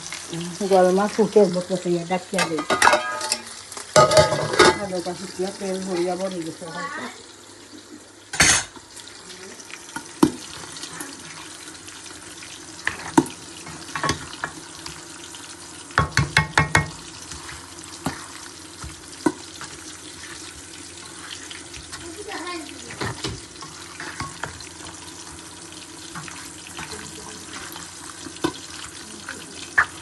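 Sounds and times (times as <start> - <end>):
metal utensils clattering on pot: 2.3 - 5.0, 8.3 - 8.8, 22.9 - 24.6.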